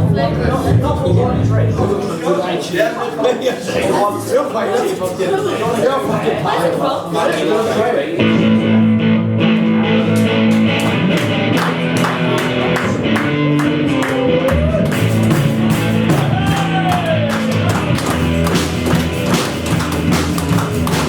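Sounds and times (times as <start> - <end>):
live rock band playing: 8.2 - 21.0.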